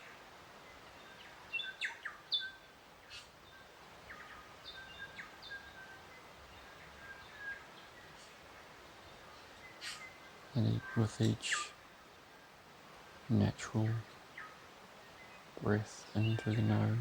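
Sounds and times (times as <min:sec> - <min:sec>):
faint steady hiss: 0:00.0 - 0:17.0
birds chirping and whistling: 0:15.2 - 0:17.0.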